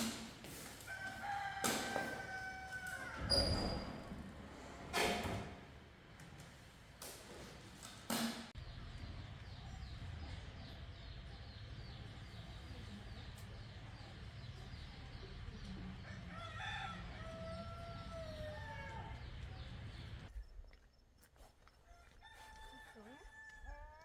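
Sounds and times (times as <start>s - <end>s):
rooster crowing: 0.8s - 3.8s, 16.0s - 19.4s.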